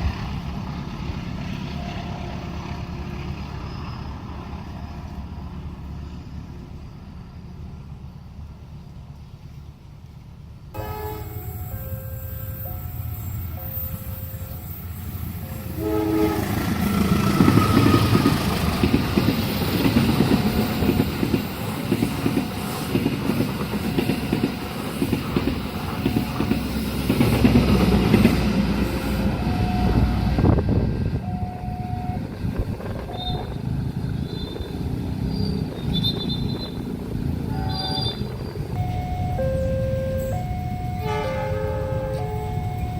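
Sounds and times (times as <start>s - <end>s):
train horn blast: 10.8s - 11.9s, 15.4s - 18.2s, 37.5s - 39.3s, 40.1s - 42.9s
crossing alarm tones: 10.8s - 27.6s, 28.2s - 34.8s, 35.6s - 42.9s
train wheels clacking on rails: 10.8s - 31.5s.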